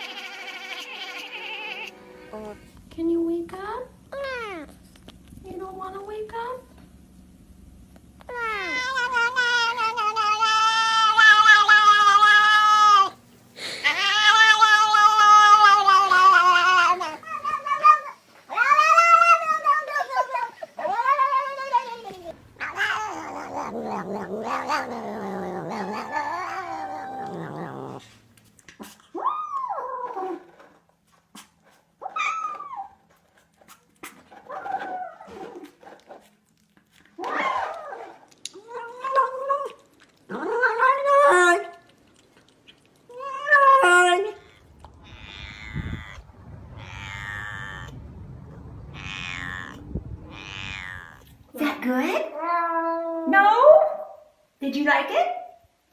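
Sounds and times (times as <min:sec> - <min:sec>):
cat yowling: 0:00.0 - 0:01.9, 0:08.3 - 0:13.2, 0:13.8 - 0:28.0, 0:43.1 - 0:51.5
cat whining calls: 0:08.3 - 0:13.2, 0:43.1 - 0:51.5.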